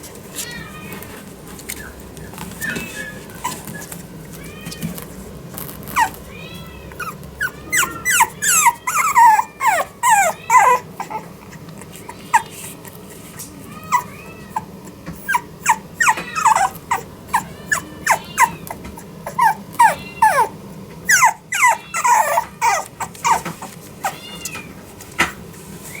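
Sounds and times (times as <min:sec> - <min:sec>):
puppy whining and yipping: 0:01.7 - 0:04.1, 0:05.9 - 0:06.3, 0:07.0 - 0:13.2, 0:13.8 - 0:24.7.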